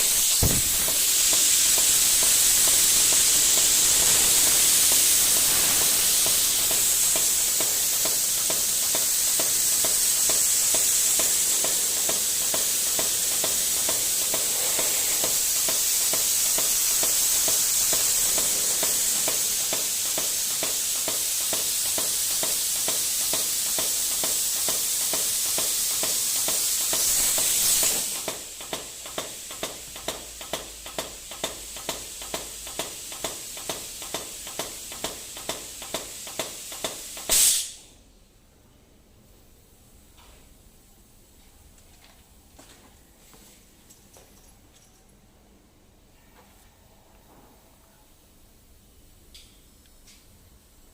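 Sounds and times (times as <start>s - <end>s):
air mist nozzle hissing: 0.0s - 37.9s.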